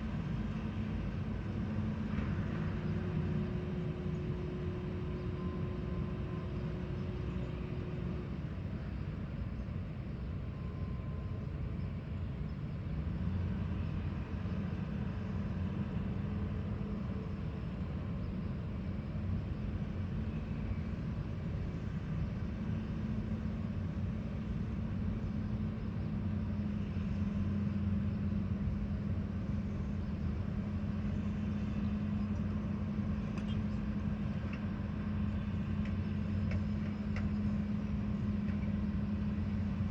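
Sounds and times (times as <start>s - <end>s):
heavy machinery engine running: 13.0s - 39.9s.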